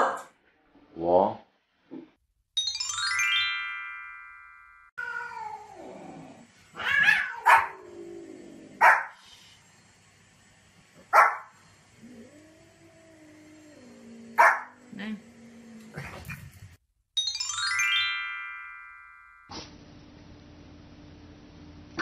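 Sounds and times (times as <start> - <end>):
rising chime jingle: 2.6 - 4.9, 17.2 - 19.5
dog barking: 7.1 - 7.8, 8.8 - 9.2, 11.1 - 11.5, 14.4 - 14.8.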